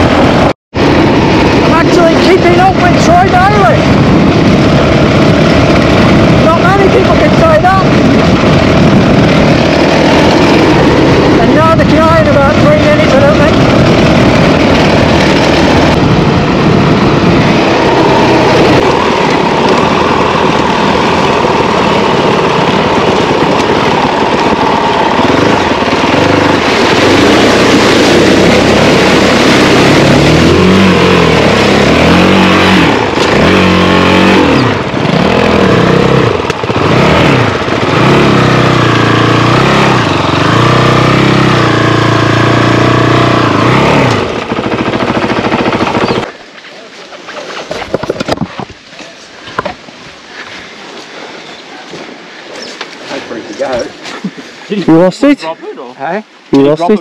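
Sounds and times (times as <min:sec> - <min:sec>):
motorcycle engine revving: 0:00.0 - 0:46.4
rushing water spray: 0:24.5 - 0:36.8.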